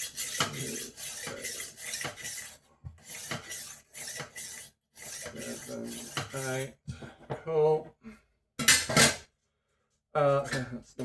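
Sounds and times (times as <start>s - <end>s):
knife rasping on sharpener: 0.0s - 6.7s.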